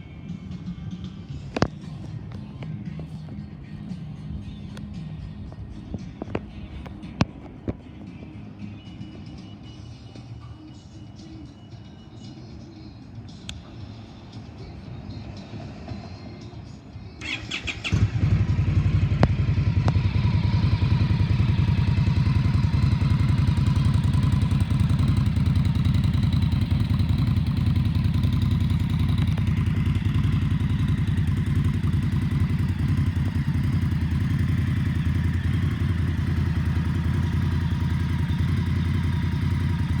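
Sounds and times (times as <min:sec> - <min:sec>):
motorcycle starter cranking: 0:17.2 - 0:18.7
motorcycle engine idling: 0:17.2 - 0:40.0.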